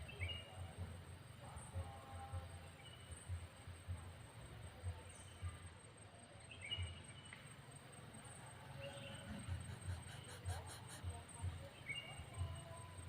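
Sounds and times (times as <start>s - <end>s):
faint bird chirps: 0.0s - 0.8s, 1.8s - 3.7s, 4.8s - 7.5s, 8.2s - 13.0s.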